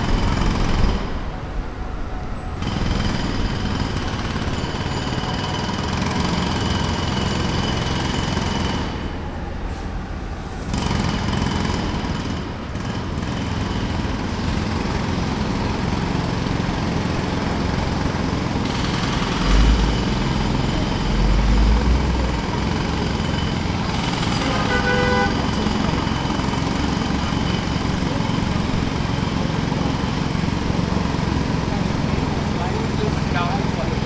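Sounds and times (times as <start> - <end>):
jackhammer breaking pavement: 0.0 - 1.3, 2.6 - 9.2, 10.7 - 34.0
low engine hum: 17.4 - 26.4.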